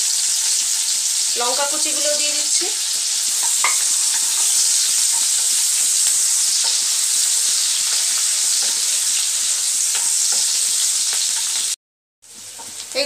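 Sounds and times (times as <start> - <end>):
onions sizzling in hot oil: 0.0 - 13.0
spatula scraping and tapping: 6.0 - 6.8, 7.8 - 8.9, 9.9 - 11.7.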